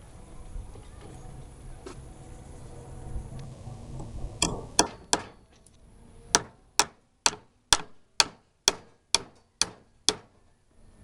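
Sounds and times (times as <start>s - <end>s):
hammer driving nails into wood: 4.4s - 5.4s, 6.4s - 10.4s.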